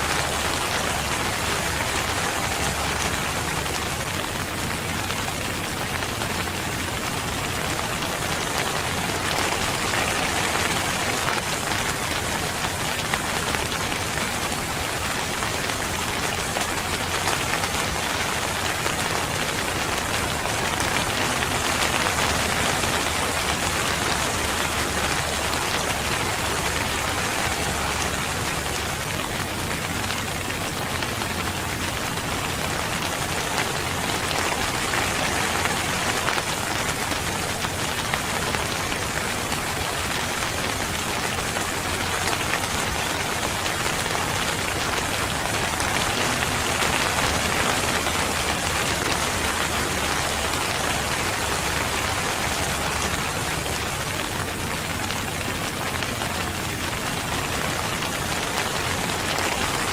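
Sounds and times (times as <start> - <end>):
rain pattering on surfaces: 0.0 - 59.9.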